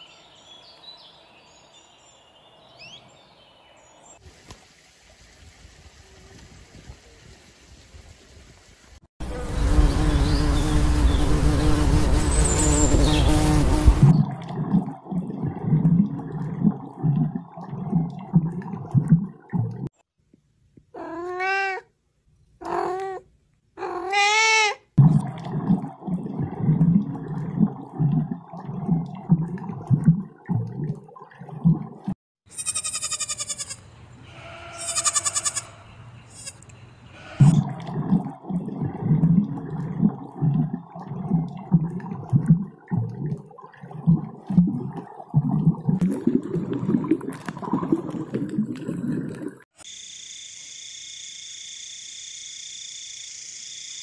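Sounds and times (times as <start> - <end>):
water bubbling: 9.2 - 19.9, 25.0 - 32.2, 37.4 - 49.8
short meow-like calls: 21.0 - 21.9
goat kid bleating: 32.5 - 33.8, 34.4 - 35.8.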